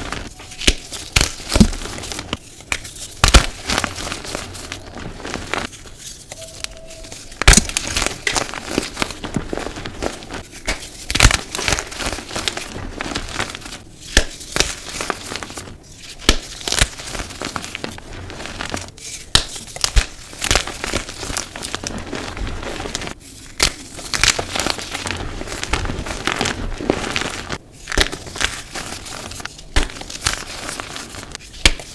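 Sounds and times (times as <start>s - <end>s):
chalk crunching: 0.0s - 31.9s
chalk pieces snapping: 18.5s - 21.9s, 22.8s - 31.9s.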